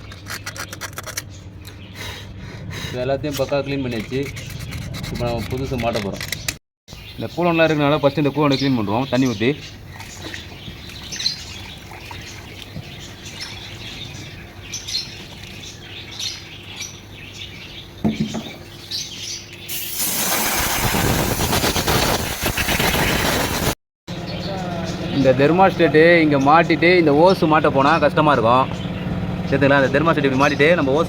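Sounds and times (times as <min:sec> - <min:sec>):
birds chirping: 0:00.0 - 0:23.4, 0:24.1 - 0:31.0.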